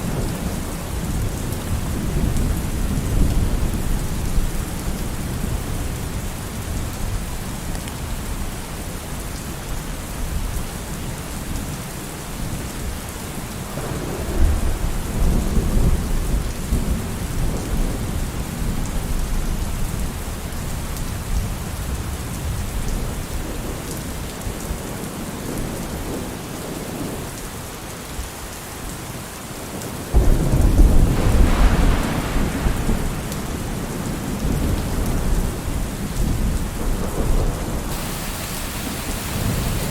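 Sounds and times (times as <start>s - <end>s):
steady rain: 0.0s - 39.9s
loud thunderclap: 30.2s - 39.9s
thunder rumbling: 30.2s - 39.9s.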